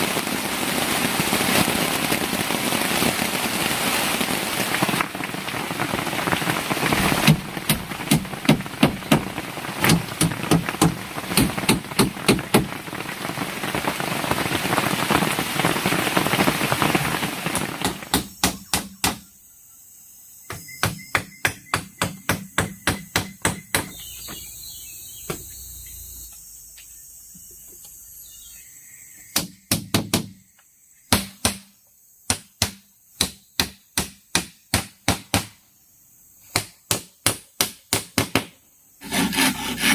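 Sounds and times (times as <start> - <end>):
loud steady hiss: 0.0 - 39.9
tool striking bamboo: 7.2 - 12.7, 17.8 - 19.3.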